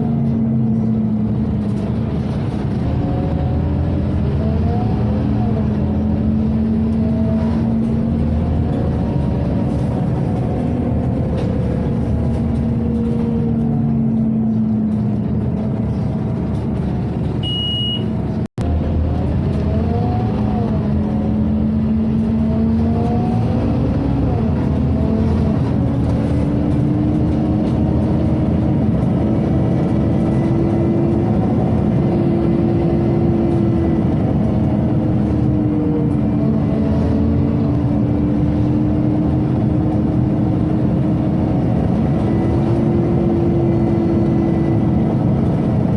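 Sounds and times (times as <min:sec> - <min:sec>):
bus engine running: 0:00.0 - 0:45.9
short high beep: 0:17.4 - 0:18.1.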